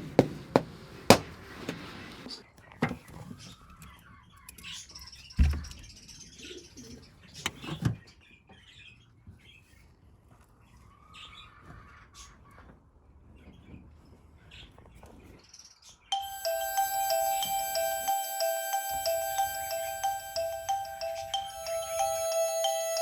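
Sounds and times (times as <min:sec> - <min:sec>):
sharp knocks: 0:00.0 - 0:01.8.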